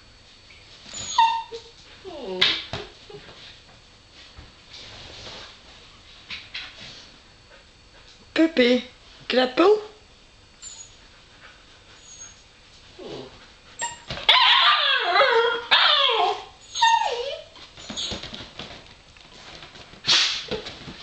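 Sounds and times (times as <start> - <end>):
puppy whining and yelping: 0.9 - 2.4, 10.6 - 11.0, 12.0 - 12.4, 13.0 - 18.3.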